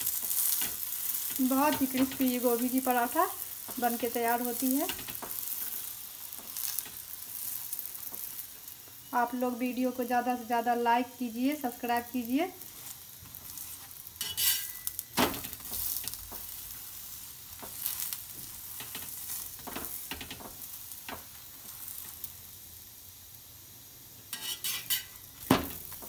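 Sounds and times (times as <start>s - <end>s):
flatbread sizzling on a pan: 0.0s - 26.0s
metal spatula scraping pan: 13.6s - 15.0s, 24.3s - 25.2s.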